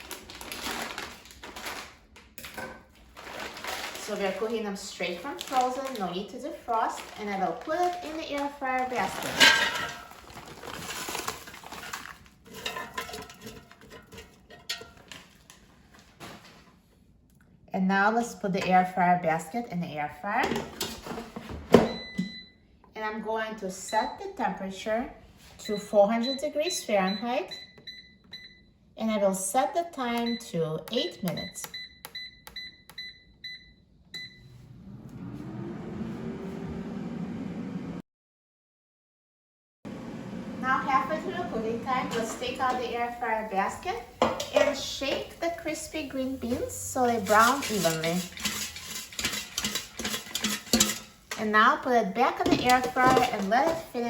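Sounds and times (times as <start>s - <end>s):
air fryer fan humming: 34.2s - 38.0s, 39.9s - 54.0s
beans rattling in metal basket: 43.5s - 51.6s.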